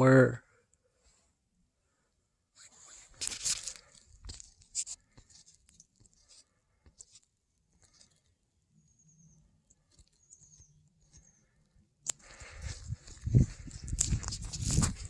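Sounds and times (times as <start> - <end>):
footsteps on gravel and leaves: 13.2 - 15.0.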